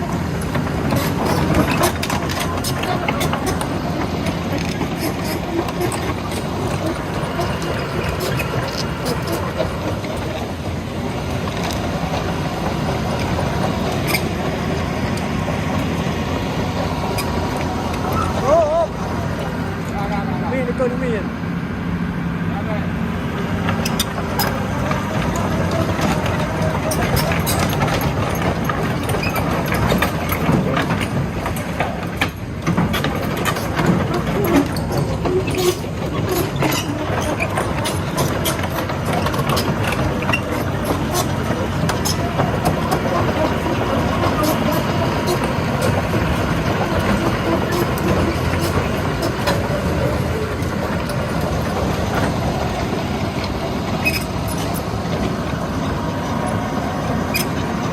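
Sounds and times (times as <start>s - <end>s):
heavy diesel machinery running: 0.0s - 57.9s
sharp knocks and clicks: 23.6s - 57.9s.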